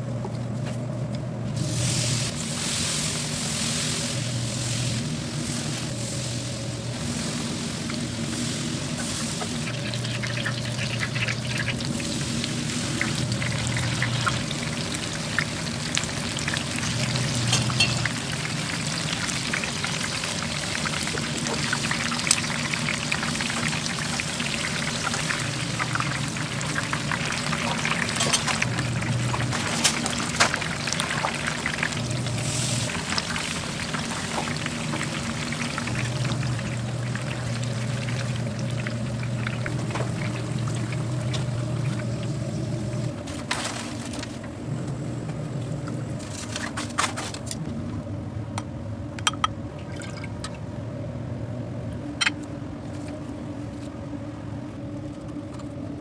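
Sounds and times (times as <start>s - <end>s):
vegetables sizzling in a hot pan: 1.8s - 41.3s.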